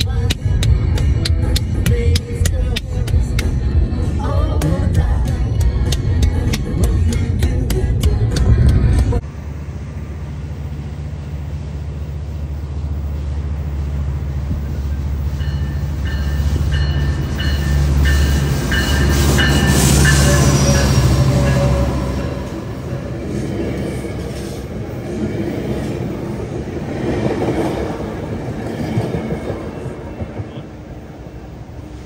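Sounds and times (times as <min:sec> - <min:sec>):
diesel locomotive engine rumble: 0:00.0 - 0:32.0
high ringing: 0:15.2 - 0:24.4.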